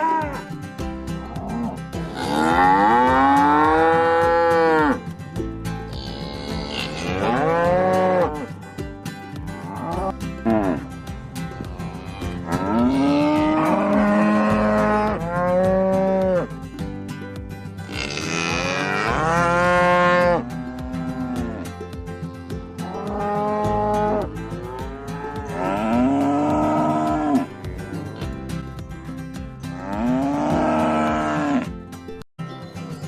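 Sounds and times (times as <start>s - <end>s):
cattle mooing: 1.3s - 5.0s, 5.9s - 8.5s, 11.6s - 16.5s, 17.9s - 21.7s, 23.0s - 28.3s, 29.7s - 31.7s.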